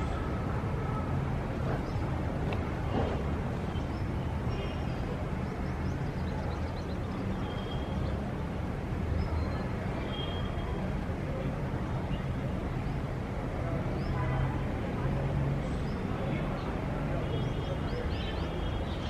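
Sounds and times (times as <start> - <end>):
distant city traffic rumble: 0.0 - 19.0
birds chirping: 1.0 - 8.2.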